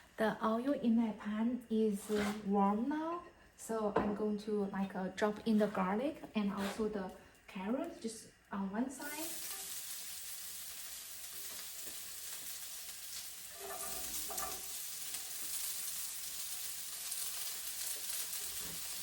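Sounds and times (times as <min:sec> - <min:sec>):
vegetables sizzling in hot oil: 0:08.9 - 0:19.0.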